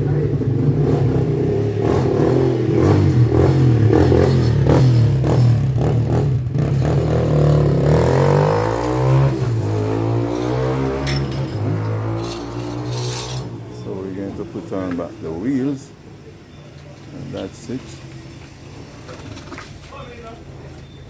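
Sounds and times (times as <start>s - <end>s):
clattering knocks: 9.5s - 13.8s.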